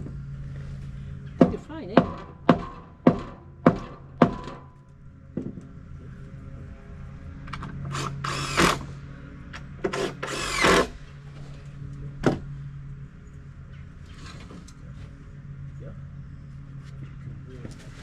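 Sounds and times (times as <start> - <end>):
steady low hum: 0.0 - 18.0
power drill driving screws: 7.8 - 8.9, 9.9 - 11.0.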